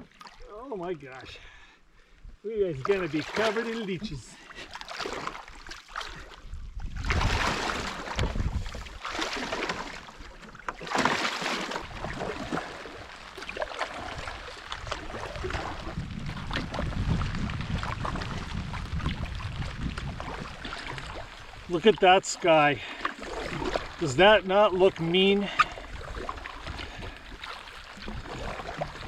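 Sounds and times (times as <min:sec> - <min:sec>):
paddle splashing water: 0:00.0 - 0:01.7, 0:02.6 - 0:29.0
wind on microphone: 0:06.4 - 0:09.0, 0:14.0 - 0:21.7.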